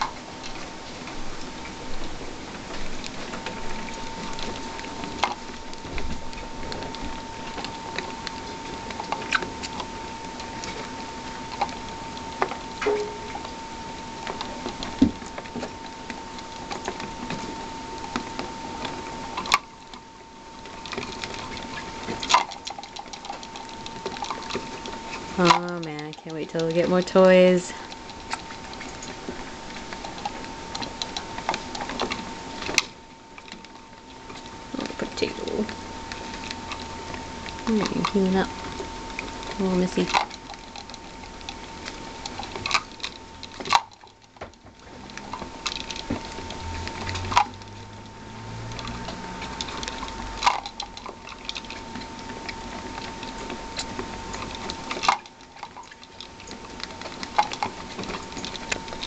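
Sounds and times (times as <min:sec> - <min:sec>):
rats scratching and clicking: 0:00.0 - 0:59.0
faint high whine: 0:03.4 - 0:21.5.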